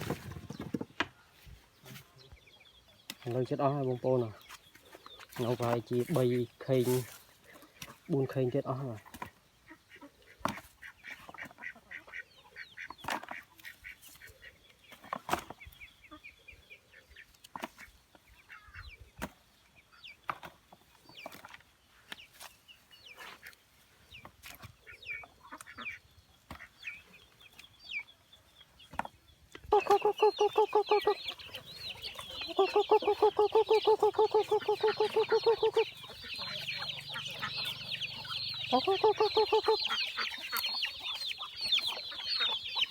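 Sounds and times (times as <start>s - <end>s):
loud repeated bird calls: 0.0s - 22.4s, 23.0s - 42.9s
birds chirping: 0.0s - 42.9s
high bird chattering: 29.7s - 42.9s.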